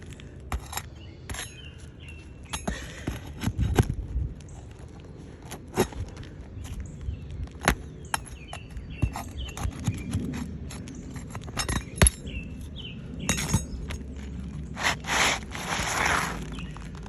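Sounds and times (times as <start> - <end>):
scraping rustle: 12.6 - 17.0.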